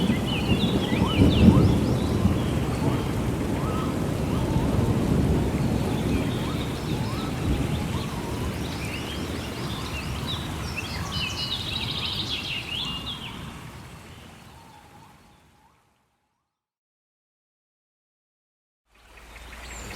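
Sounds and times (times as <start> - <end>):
rain rumbling: 0.0 - 15.8
songbirds chirping: 0.0 - 16.6, 18.9 - 19.9.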